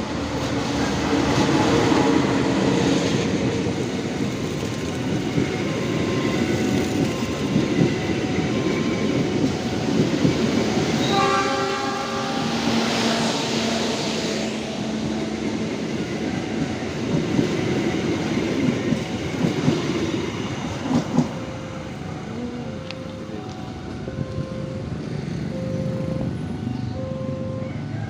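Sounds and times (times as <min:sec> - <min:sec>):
train rumbling past: 0:00.0 - 0:28.0
train horn: 0:10.9 - 0:13.8.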